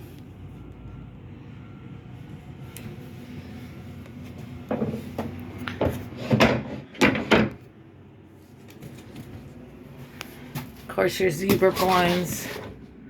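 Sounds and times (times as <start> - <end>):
low steady hum: 0.0 - 13.0
knocks and thumps: 4.7 - 7.6.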